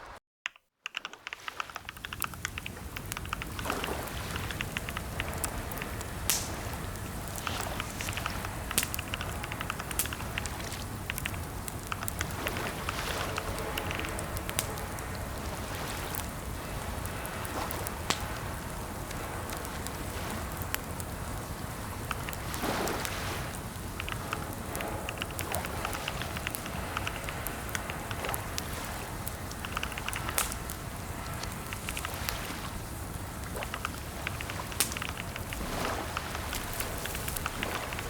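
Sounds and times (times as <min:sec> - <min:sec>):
keyboard typing: 0:00.5 - 0:06.1, 0:07.4 - 0:14.8, 0:22.1 - 0:22.7, 0:24.0 - 0:28.8, 0:29.5 - 0:30.7, 0:33.6 - 0:38.0
steady background noise: 0:00.9 - 0:38.0.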